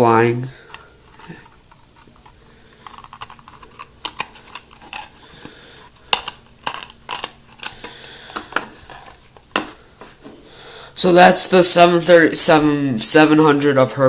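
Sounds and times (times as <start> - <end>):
box rustling: 0.7 - 10.4.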